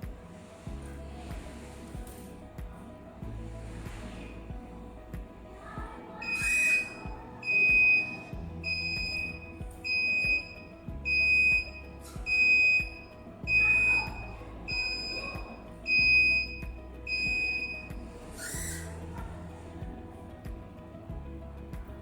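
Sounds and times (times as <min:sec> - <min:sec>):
background music with steady beat: 0:00.0 - 0:22.0
warning buzzer beeping: 0:06.2 - 0:10.5.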